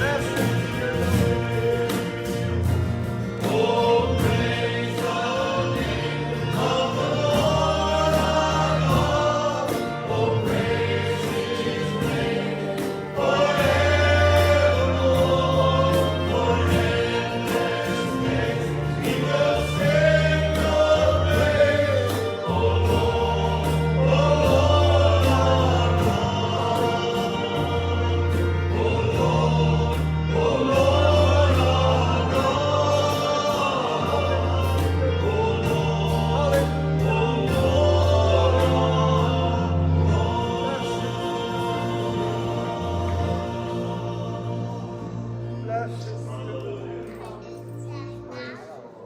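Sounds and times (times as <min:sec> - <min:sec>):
band with bass and beat: 0:00.0 - 0:44.9
group of voices singing: 0:00.0 - 0:48.5.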